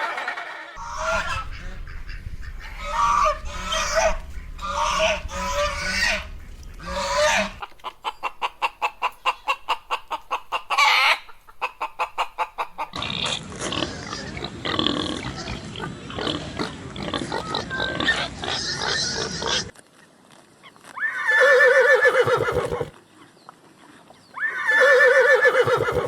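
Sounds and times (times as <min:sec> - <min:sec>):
chickens clucking: 0:00.0 - 0:13.0
chickens squawking: 0:00.0 - 0:13.0, 0:20.9 - 0:23.0, 0:24.3 - 0:26.0.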